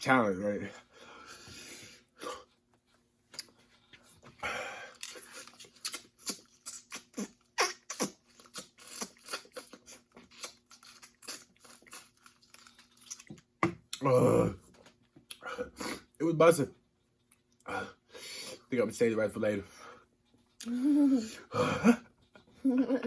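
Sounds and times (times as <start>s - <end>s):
wet mouth clicks and smacks: 5.0s - 13.4s
person breathing: 17.7s - 18.7s.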